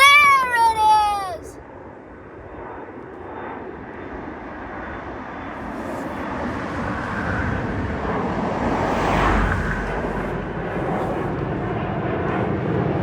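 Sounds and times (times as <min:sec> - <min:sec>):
jet engines roaring: 0:05.2 - 0:13.0.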